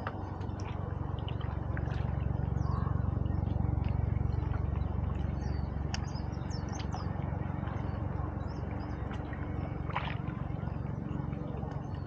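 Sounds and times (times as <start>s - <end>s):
steady low rumble: 0.0s - 12.0s
birds chirping: 2.4s - 9.8s.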